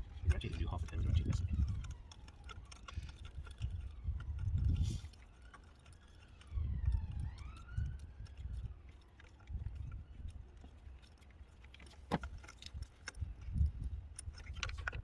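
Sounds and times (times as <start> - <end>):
distant siren wailing: 0.0 - 11.2.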